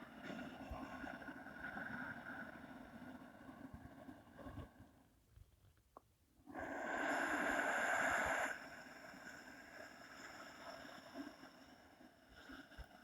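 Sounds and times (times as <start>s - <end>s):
person breathing in through nose: 6.5s - 8.8s.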